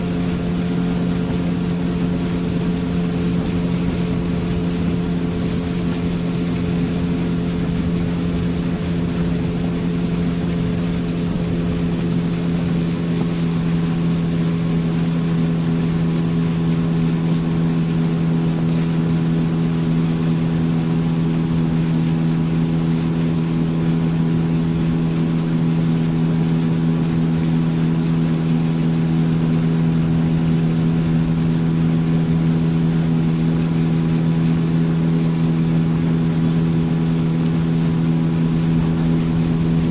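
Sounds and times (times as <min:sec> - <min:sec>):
hull wash: 0:00.0 - 0:39.9
outboard engine running: 0:00.0 - 0:39.9
wind noise: 0:38.2 - 0:39.9.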